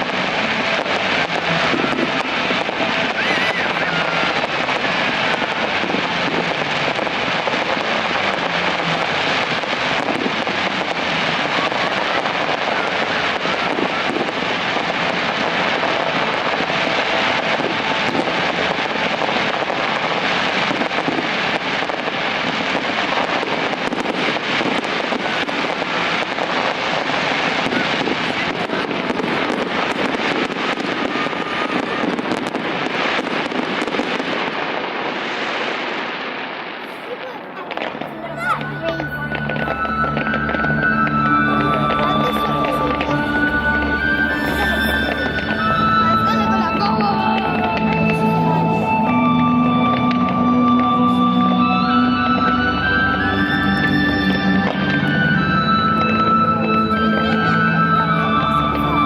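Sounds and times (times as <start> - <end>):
fireworks crackling and fizzing: 0.0 - 59.0.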